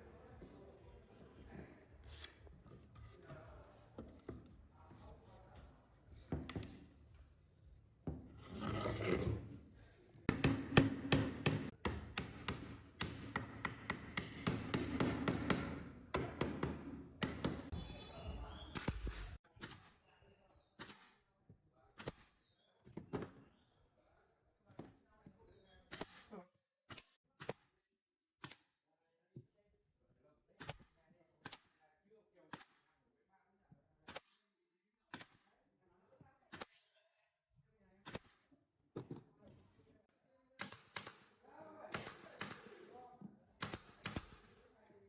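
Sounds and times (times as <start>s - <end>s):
rasping strokes on wood: 8.4s - 9.5s.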